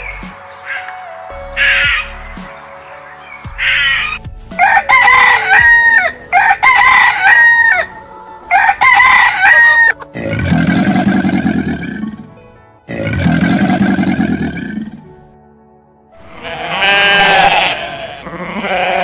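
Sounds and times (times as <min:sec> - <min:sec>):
rooster crowing: 0:04.6 - 0:07.9, 0:08.5 - 0:10.0.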